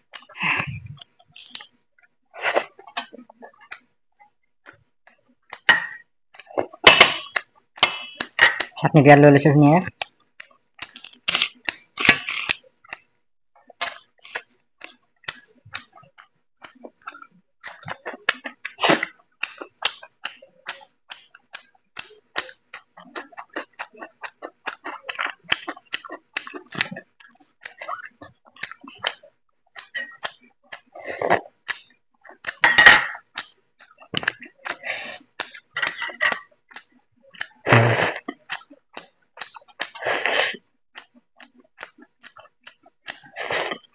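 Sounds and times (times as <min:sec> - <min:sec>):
wet chewing mouth clicks: 0:36.7 - 0:43.9.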